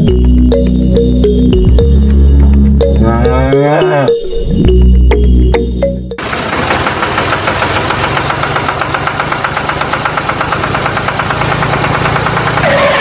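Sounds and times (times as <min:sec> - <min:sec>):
tractor engine chugging: 0:06.2 - 0:13.0.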